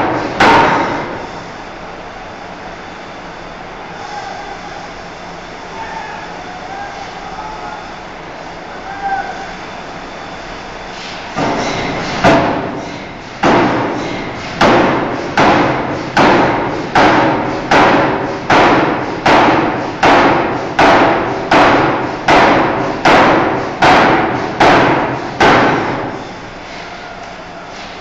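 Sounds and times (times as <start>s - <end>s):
hammer striking steel bar: 0.0s - 1.2s, 11.4s - 26.1s.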